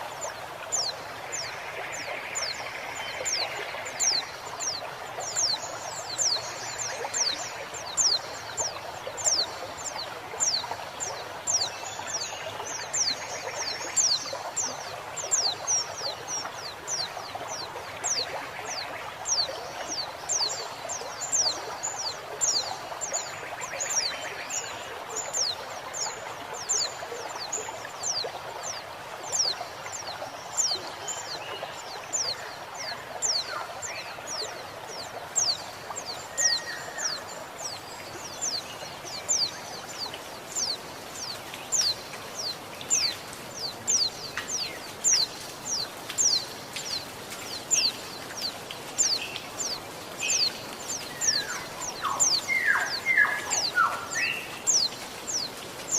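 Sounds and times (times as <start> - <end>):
flowing water: 0.0 - 55.9
other birds calling: 32.2 - 55.9.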